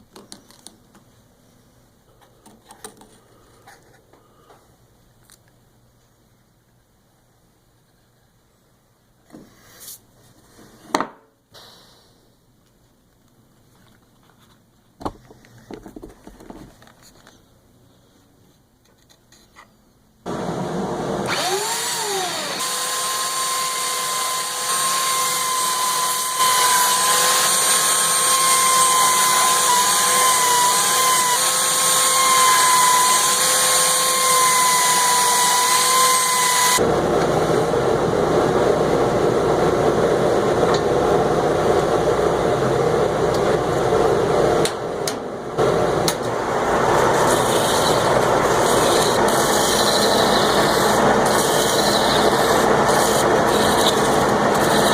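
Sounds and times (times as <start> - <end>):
power tool whining: 20.3 - 36.9, 46.8 - 54.9
rough noisy machine: 20.3 - 37.8, 45.6 - 54.9.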